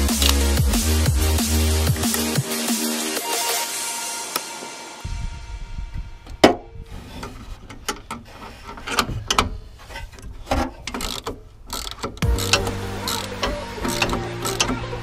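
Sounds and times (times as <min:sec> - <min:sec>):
ratchet wrench clicking: 0:00.0 - 0:00.6, 0:11.0 - 0:14.9
metal clanks and knocks: 0:06.4 - 0:15.0.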